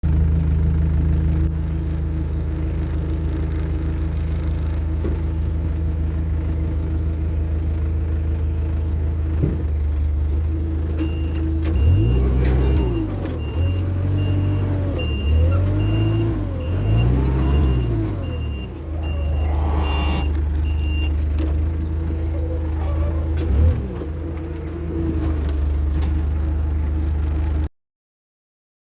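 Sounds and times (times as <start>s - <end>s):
diesel truck engine revving: 2.6s - 27.6s
reversing beeper: 11.0s - 21.2s.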